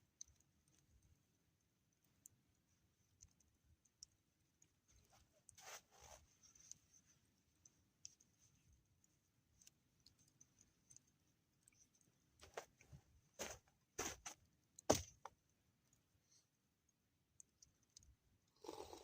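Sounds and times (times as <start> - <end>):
soft rustle: 4.6 - 14.4
faint clicks: 7.6 - 12.9.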